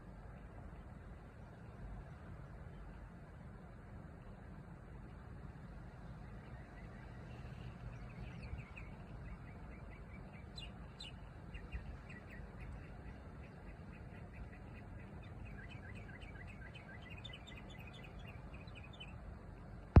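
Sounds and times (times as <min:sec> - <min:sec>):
low background rumble: 0:00.0 - 0:20.0
bird chirping: 0:06.2 - 0:19.3.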